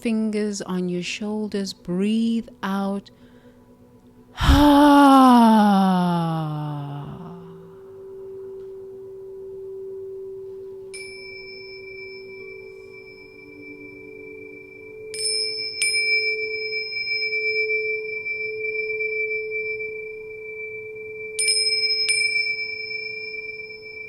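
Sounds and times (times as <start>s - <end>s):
meditation chime ringing: 6.3s - 24.0s.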